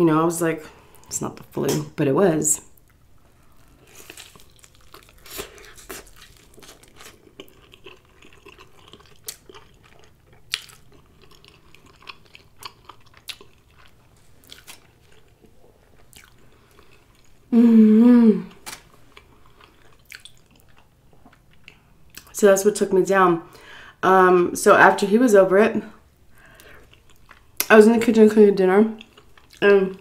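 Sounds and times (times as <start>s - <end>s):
close chewing mouth sounds: 2.9s - 17.4s, 19.0s - 22.3s, 29.0s - 29.6s
person humming: 17.5s - 18.6s.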